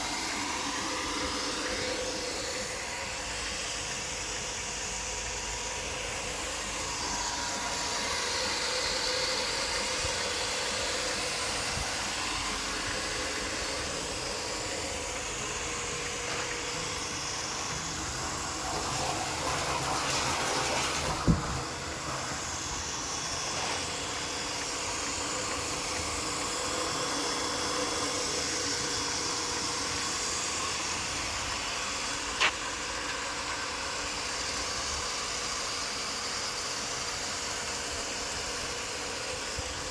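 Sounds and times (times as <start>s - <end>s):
motor hum: 0.0s - 39.9s
water rushing: 14.2s - 32.1s.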